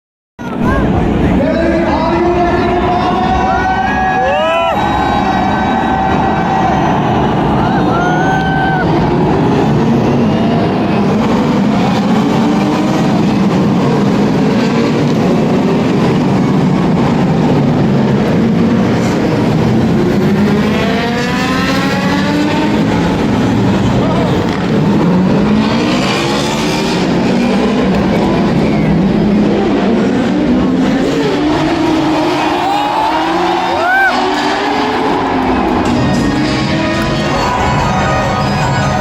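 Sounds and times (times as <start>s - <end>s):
car engines running: 0.4s - 39.0s
engine revving: 8.9s - 39.0s.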